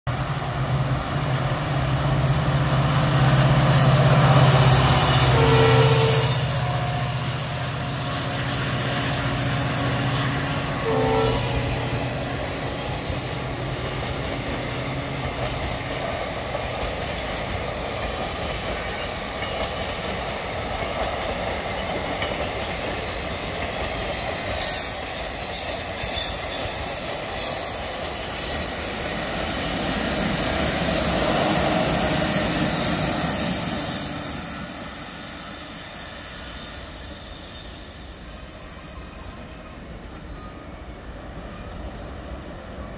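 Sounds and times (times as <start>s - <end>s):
train coaches rolling on track: 0.1s - 42.9s
high wheel squeal: 4.3s - 9.2s, 24.6s - 39.4s.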